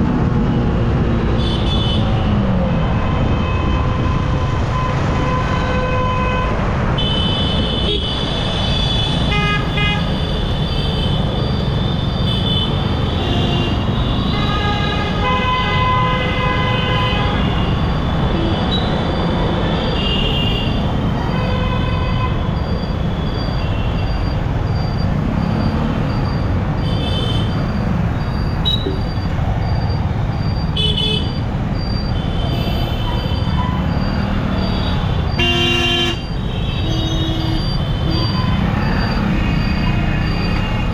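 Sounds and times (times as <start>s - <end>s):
vehicle horns honking: 5.2s - 11.3s, 12.1s - 18.9s, 32.2s - 38.7s.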